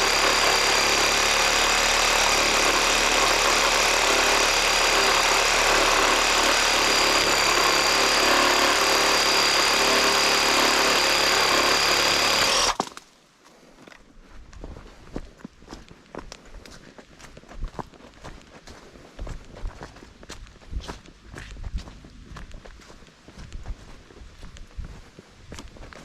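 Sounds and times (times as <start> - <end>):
motor whining: 0.0 - 12.8.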